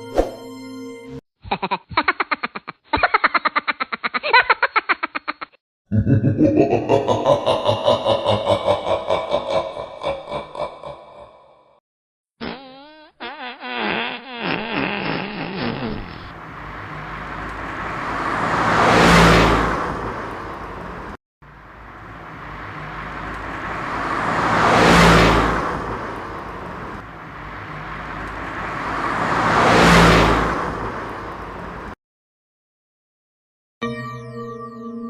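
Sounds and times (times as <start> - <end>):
motor vehicle passing by: 16.1 - 32.0.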